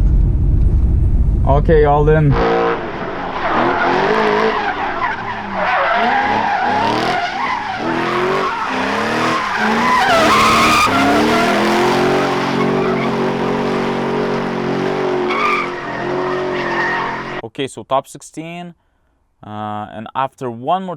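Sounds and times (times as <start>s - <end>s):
car engine revving: 0.0s - 17.4s
tyres squealing: 2.4s - 13.8s, 15.0s - 17.4s.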